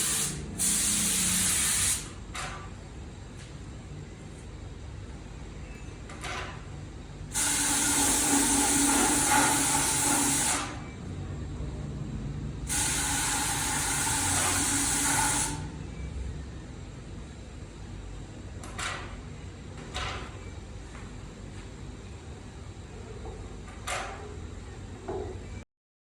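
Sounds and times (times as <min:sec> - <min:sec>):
pressurised spray hissing: 0:00.0 - 0:02.1.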